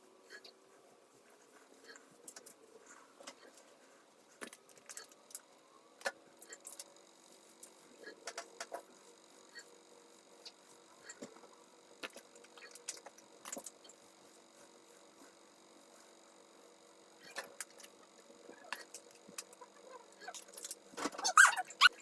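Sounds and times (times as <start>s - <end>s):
small clicks and rustles: 1.4s - 9.7s, 10.4s - 14.0s, 17.2s - 19.6s, 20.2s - 21.3s.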